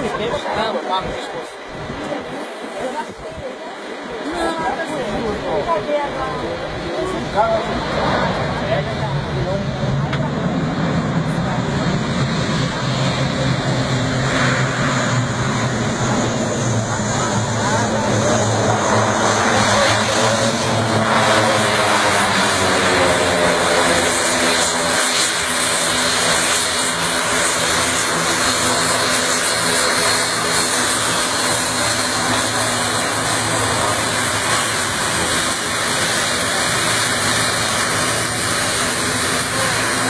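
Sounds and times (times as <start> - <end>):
turboprop engines droning: 0.0 - 40.0.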